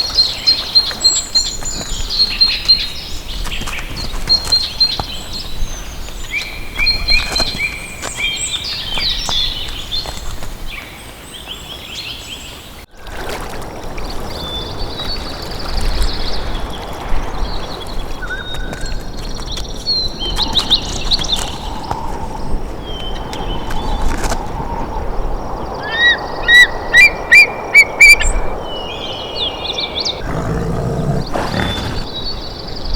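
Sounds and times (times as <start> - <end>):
wild birds singing: 29.8 - 32.9.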